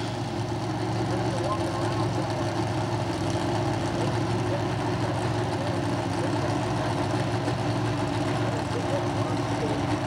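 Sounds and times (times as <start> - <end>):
racing car engine idling: 0.0 - 10.0.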